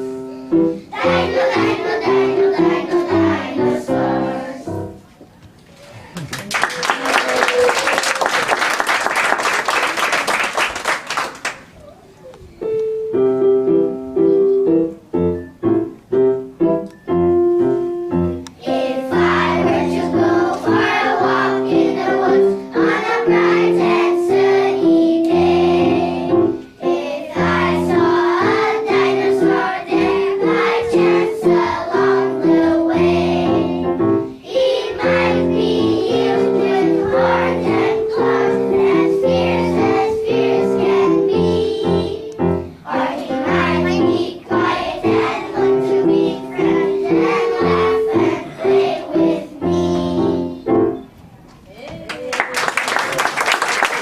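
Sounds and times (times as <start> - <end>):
children singing together: 0.0 - 5.0, 18.6 - 51.0
piano: 0.0 - 5.4, 6.5 - 51.5.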